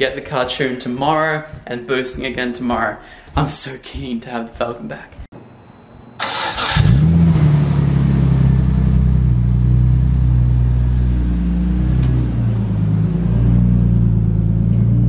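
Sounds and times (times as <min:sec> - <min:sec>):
car engine idling: 0:06.8 - 0:15.0.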